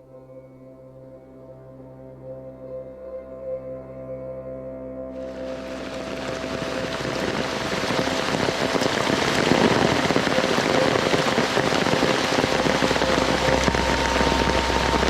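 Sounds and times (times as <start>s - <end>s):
heavy rain pouring: 5.2s - 15.0s.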